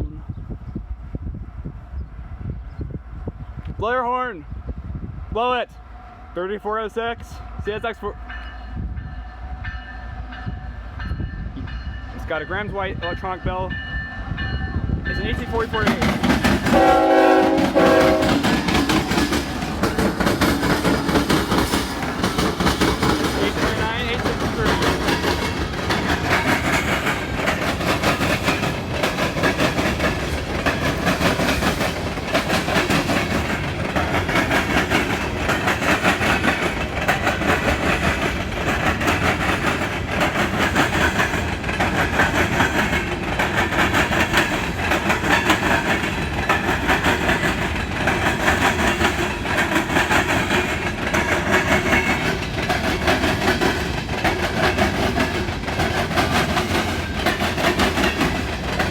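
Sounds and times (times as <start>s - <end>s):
train wheels banging over rail gaps: 15.3s - 58.9s.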